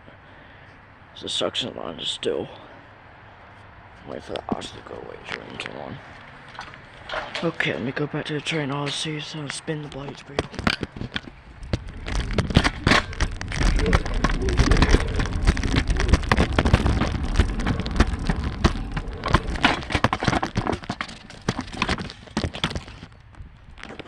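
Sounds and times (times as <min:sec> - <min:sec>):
low rumble: 0:11.3 - 0:21.8.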